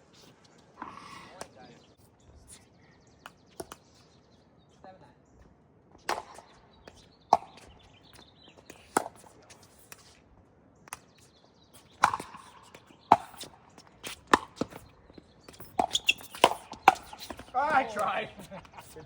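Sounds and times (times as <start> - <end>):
ball bouncing on court: 15.5 - 17.5.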